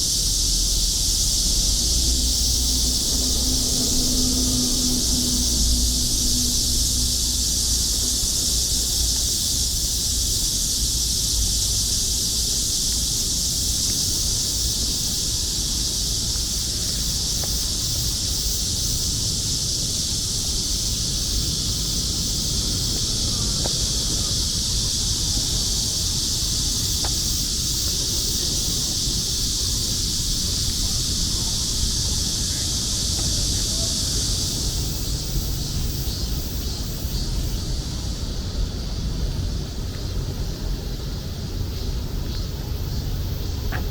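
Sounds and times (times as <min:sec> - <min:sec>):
cicadas singing: 0:00.0 - 0:43.9
low rumble: 0:00.3 - 0:09.2.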